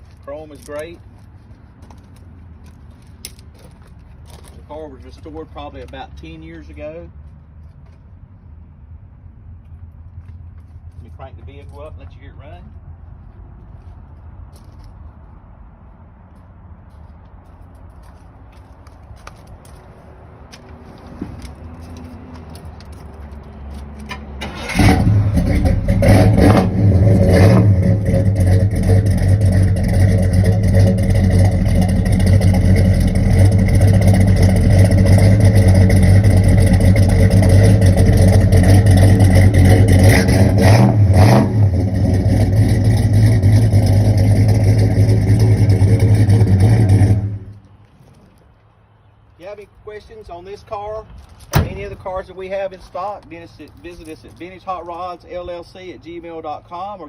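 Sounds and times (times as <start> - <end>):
car engine starting and revving: 24.0 - 47.6.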